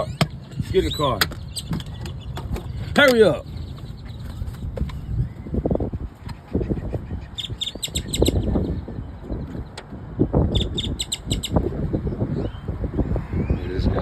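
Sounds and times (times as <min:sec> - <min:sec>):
thumps: 0:00.0 - 0:03.2
bird chirping: 0:00.0 - 0:09.8, 0:10.5 - 0:14.0.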